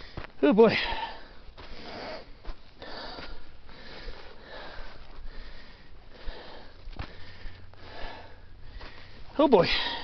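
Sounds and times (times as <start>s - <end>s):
person breathing hard: 0.0s - 10.0s.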